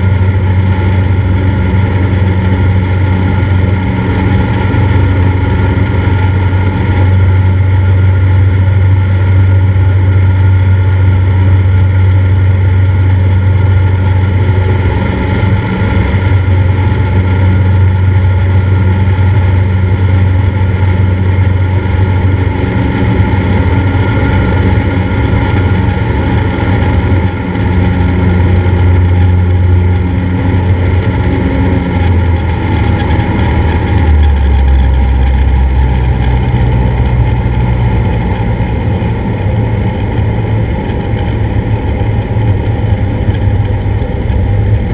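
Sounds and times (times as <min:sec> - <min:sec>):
propeller plane engine humming: 0:00.0 - 0:44.9.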